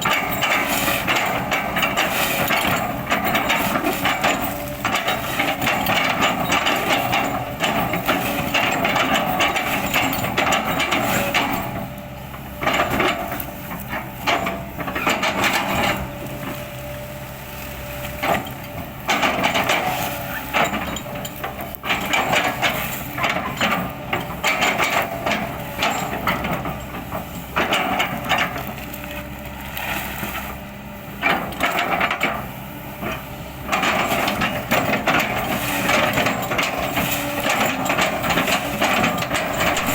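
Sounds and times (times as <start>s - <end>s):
excavator engine humming: 0.0s - 39.9s
wood crackling and splintering: 33.8s - 39.9s.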